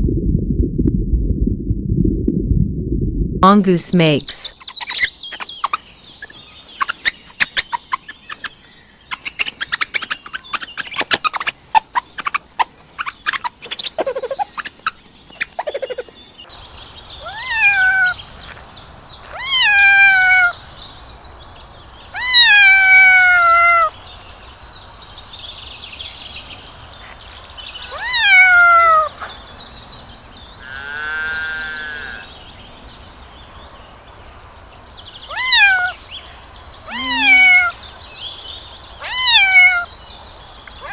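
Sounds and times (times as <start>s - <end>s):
mongoose chattering: 4.5s - 16.1s, 36.9s - 37.7s
cat meowing: 17.2s - 18.2s, 19.4s - 20.5s, 22.2s - 23.9s, 27.9s - 29.1s, 35.3s - 36.0s, 36.9s - 37.8s, 39.0s - 39.9s.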